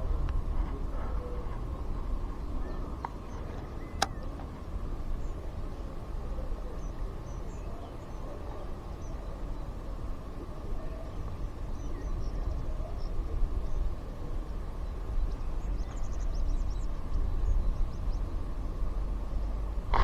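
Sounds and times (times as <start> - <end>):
wind buffeting microphone: 0.0 - 5.7
sharp click: 4.0 - 4.3.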